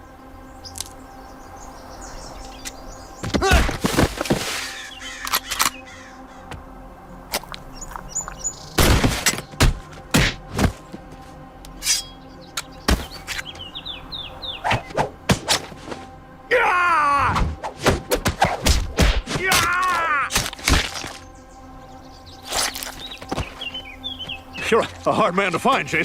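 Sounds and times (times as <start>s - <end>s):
music: 0.0s - 26.0s
sharp hits and thuds: 8.8s - 10.8s
loud wavering yell: 16.5s - 17.4s, 19.4s - 20.3s.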